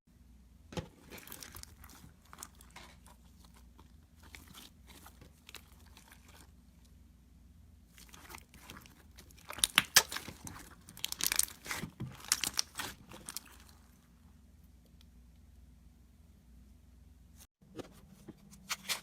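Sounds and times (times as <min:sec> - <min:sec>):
slime crackling and popping: 0:07.9 - 0:13.8.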